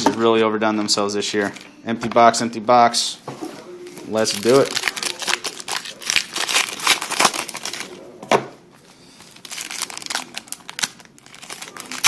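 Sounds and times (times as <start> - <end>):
plastic wrappers crinkling: 3.8 - 8.0, 9.1 - 12.0.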